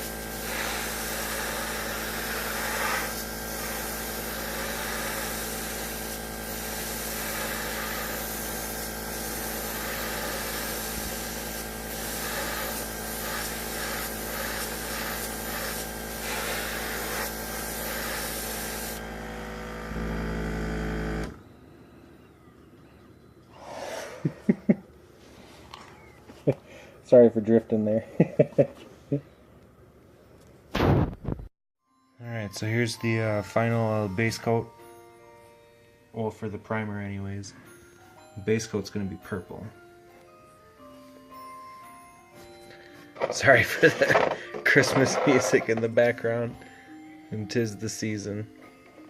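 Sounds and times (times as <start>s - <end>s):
airbrush hissing: 0.0s - 21.2s, 23.5s - 24.6s
air compressor humming: 0.0s - 27.0s, 43.1s - 46.4s.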